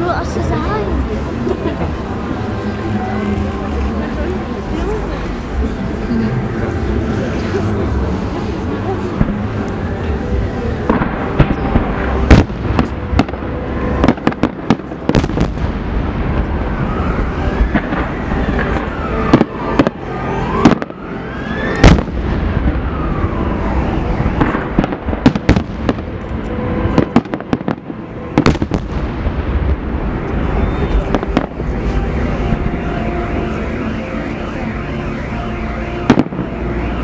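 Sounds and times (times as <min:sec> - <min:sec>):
continuous rumble: 0:00.0 - 0:37.0
fireworks bangs and crackles: 0:00.0 - 0:37.0
firework whistles: 0:30.4 - 0:32.7.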